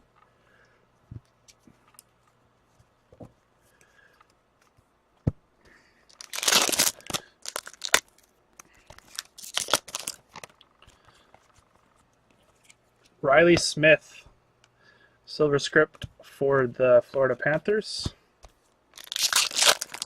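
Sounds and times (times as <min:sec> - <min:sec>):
foil wrappers crinkling and tearing: 0:06.1 - 0:08.2, 0:08.9 - 0:10.6, 0:18.9 - 0:20.0.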